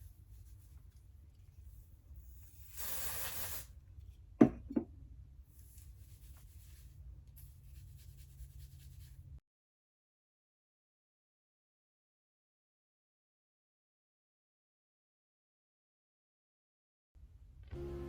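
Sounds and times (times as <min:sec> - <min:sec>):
hair spray hiss: 0:02.4 - 0:03.7
rustling of hair and hands: 0:05.5 - 0:09.3.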